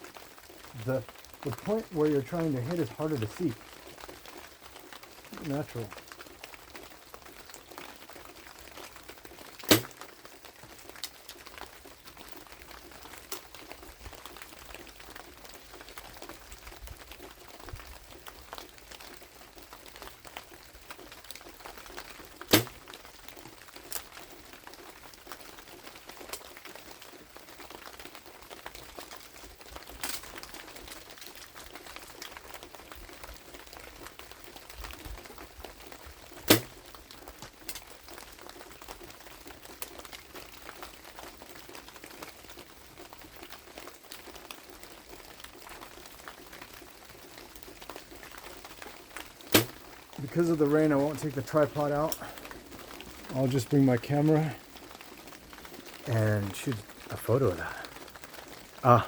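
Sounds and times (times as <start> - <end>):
rain hissing: 0.6 - 3.7, 5.3 - 6.0, 49.5 - 59.0
compound bow release crack: 9.7 - 9.9, 36.5 - 36.8.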